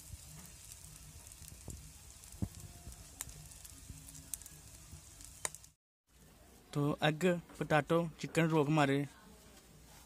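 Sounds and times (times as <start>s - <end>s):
food deep-frying in oil: 0.0s - 5.8s.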